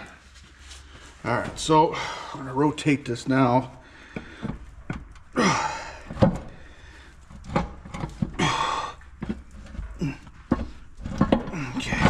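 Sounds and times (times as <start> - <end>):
metal clunks and knocks: 6.0 - 6.7, 7.3 - 12.0.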